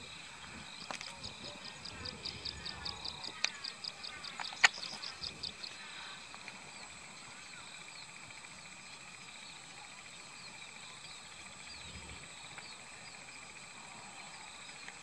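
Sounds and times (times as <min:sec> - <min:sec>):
small bird calling: 0:00.0 - 0:07.8.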